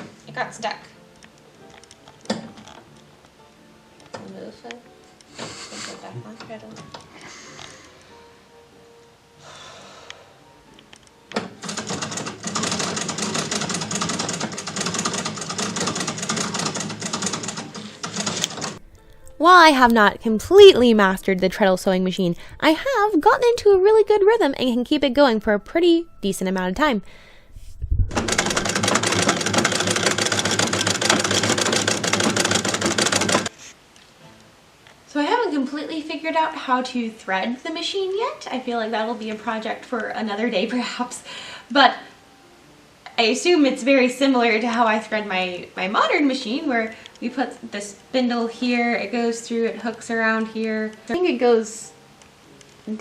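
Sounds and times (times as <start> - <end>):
sewing machine clattering: 11.4 - 18.8, 28.1 - 33.5.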